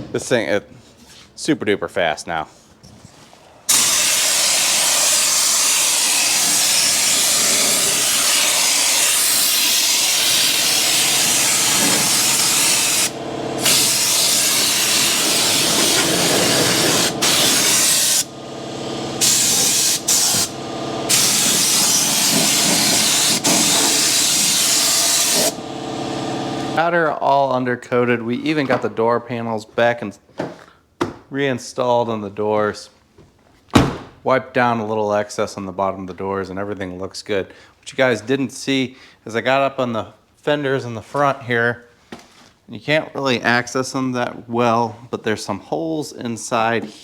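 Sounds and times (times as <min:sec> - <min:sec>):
spray gun hissing: 0:03.7 - 0:26.6.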